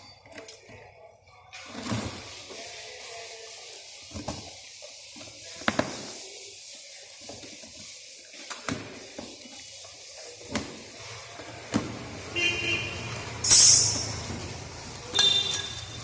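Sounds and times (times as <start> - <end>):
steady hiss: 1.6 - 11.7.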